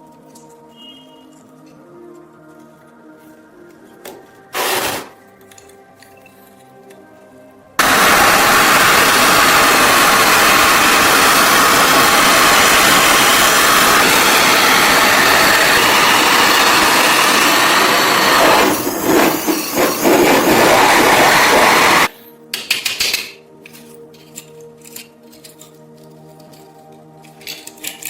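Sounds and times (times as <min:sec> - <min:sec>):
power tool grinding metal: 0:04.6 - 0:05.1, 0:07.8 - 0:22.1.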